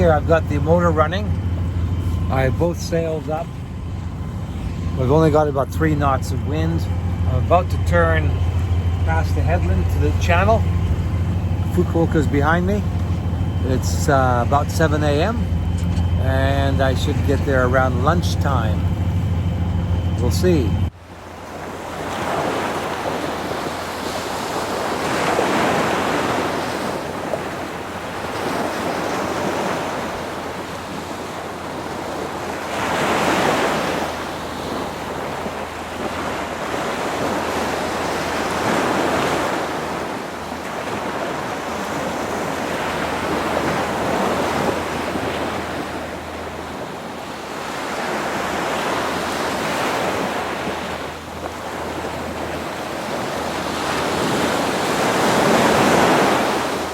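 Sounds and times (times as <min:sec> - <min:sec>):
wind buffeting microphone: 0:00.0 - 0:20.9
boat motor humming: 0:00.0 - 0:56.9
water splashing along boat hull: 0:00.0 - 0:56.9.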